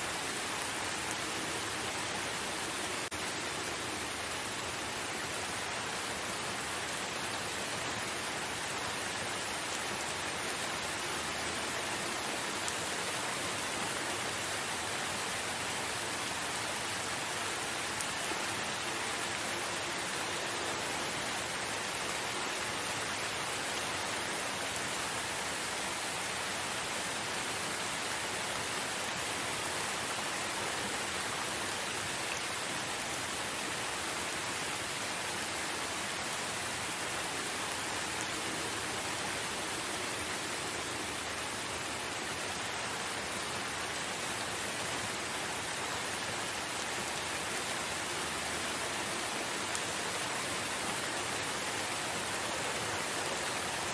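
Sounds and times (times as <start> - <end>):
rain falling in forest: 0.0 - 53.9.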